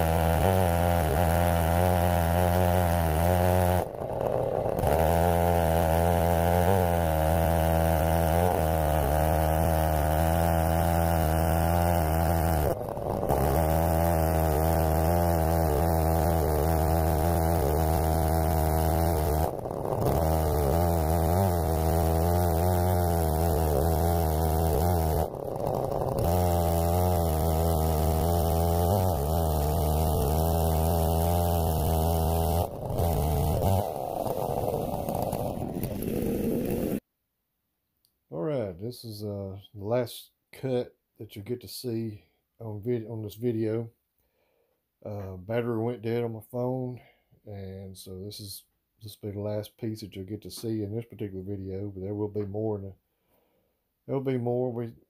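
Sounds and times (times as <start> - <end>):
chainsaw cutting a log: 0.0 - 37.0.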